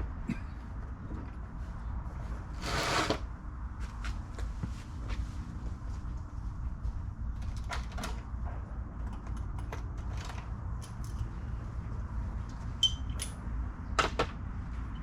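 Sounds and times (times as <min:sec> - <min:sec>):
steady low rumble: 0:03.3 - 0:15.0
ringing metal clink: 0:12.8 - 0:13.4.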